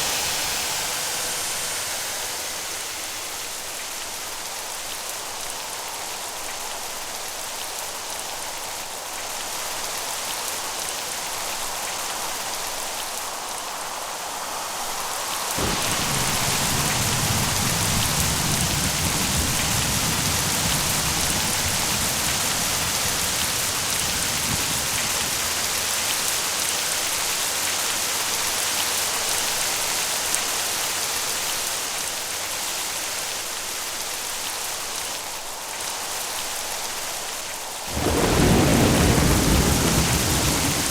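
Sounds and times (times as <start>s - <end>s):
rain falling: 0.0s - 40.9s
thunder rumbling: 15.6s - 26.5s, 37.9s - 40.9s.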